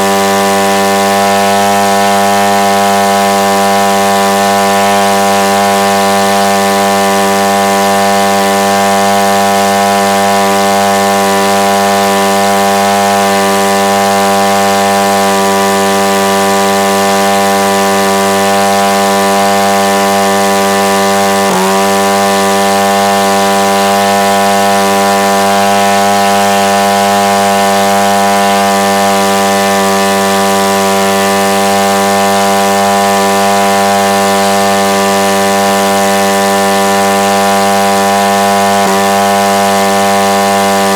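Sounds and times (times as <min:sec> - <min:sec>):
two-stroke engine running at high speed: 0:00.0 - 0:40.9.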